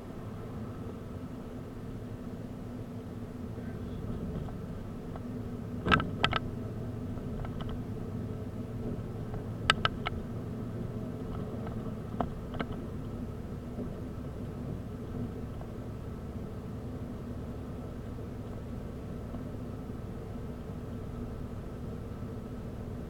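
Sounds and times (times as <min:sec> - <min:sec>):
car engine and road noise drone: 0:00.0 - 0:23.0
sharp knocks or rattles: 0:05.8 - 0:06.5.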